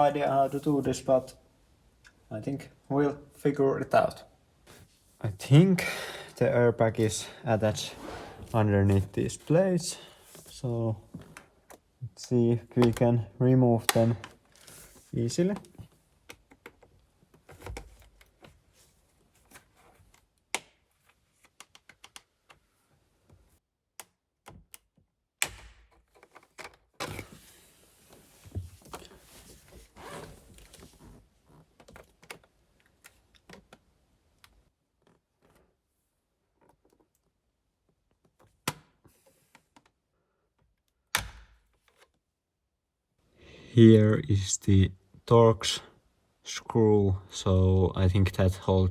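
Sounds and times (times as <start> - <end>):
rubbing noise: 7.7 - 9.0.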